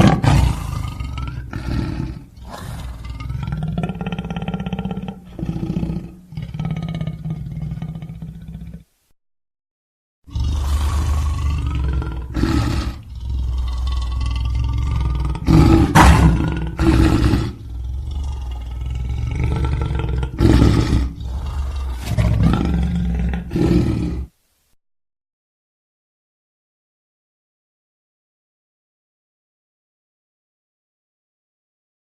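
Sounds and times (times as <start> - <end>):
lion roaring: 0.0 - 8.9, 10.3 - 24.3.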